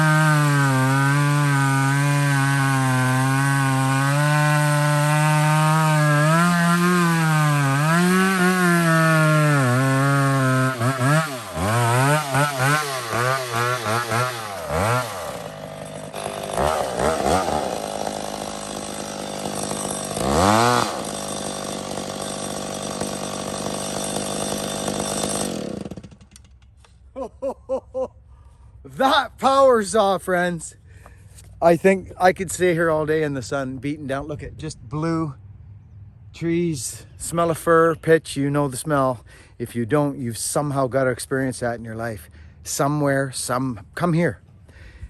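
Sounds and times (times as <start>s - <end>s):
chainsaw cutting wood: 0.0s - 26.8s.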